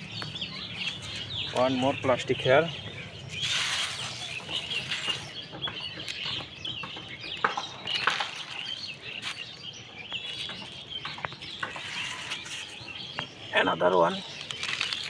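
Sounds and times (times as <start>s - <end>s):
birds chirping: 0.0s - 15.0s
sharp crackles: 3.3s - 5.4s, 14.2s - 15.0s.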